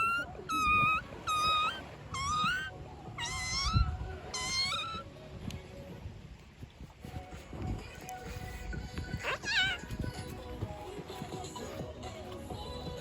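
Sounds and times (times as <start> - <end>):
imitation kitten mews: 0.0 - 5.0, 9.2 - 9.9.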